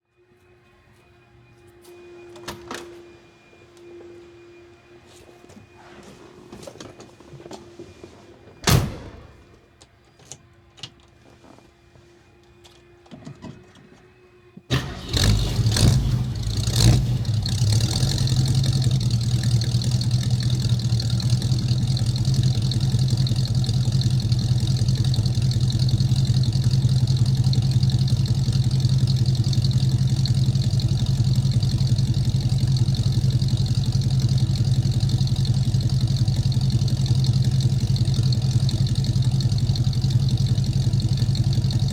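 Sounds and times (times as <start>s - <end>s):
car engine starting and idling: 14.7s - 41.9s.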